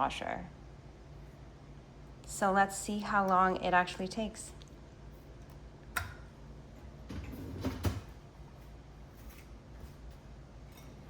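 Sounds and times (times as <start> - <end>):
dishwasher rack sliding and rattling: 7.1 - 8.1.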